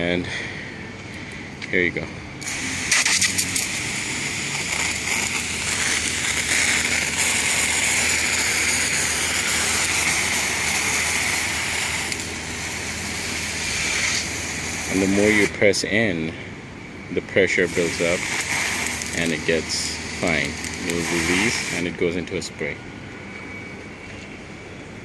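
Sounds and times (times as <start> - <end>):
pump humming: 2.2 - 22.1
water jet hissing on car: 2.4 - 15.9, 17.3 - 22.4.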